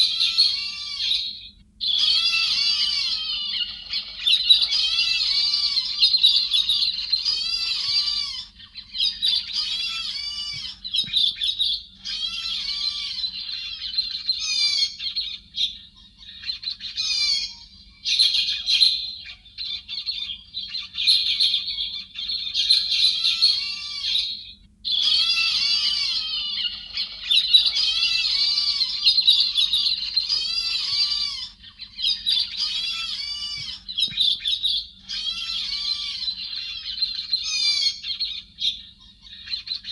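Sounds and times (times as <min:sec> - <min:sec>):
thrush harsh chattering call: 0:00.0 - 0:11.3, 0:19.8 - 0:34.4.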